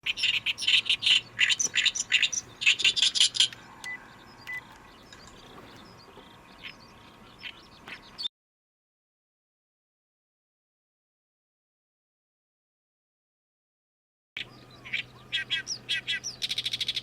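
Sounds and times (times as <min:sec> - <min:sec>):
reed warbler singing: 0:00.0 - 0:08.3, 0:14.4 - 0:17.0.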